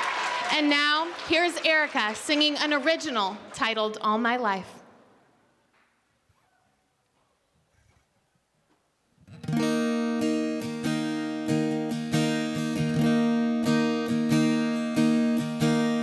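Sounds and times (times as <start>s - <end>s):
acoustic guitar strumming: 9.2s - 16.0s.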